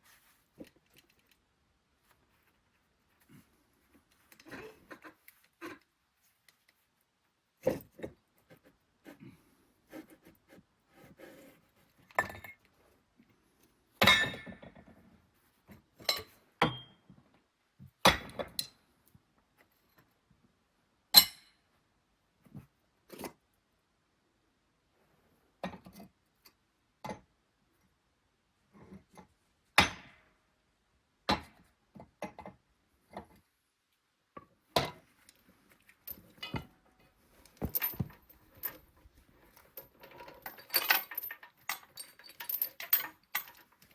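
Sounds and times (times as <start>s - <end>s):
steel parts and chain clanking: 37.4s - 43.9s.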